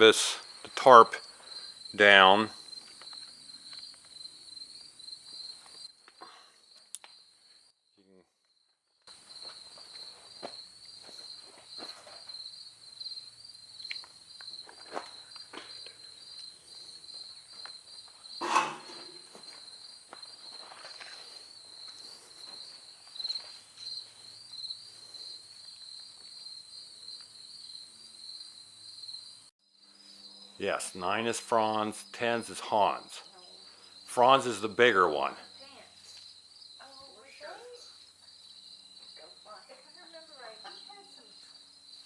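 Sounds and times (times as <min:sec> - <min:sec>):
insects chirping trill: 0:00.0 - 0:42.0
loud thump: 0:18.4 - 0:19.2.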